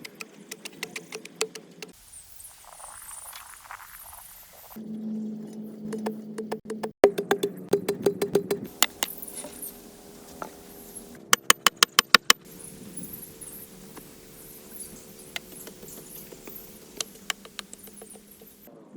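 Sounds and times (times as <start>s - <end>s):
sharp knocks and taps: 6.0s - 9.2s, 11.4s - 12.5s, 15.3s - 18.7s.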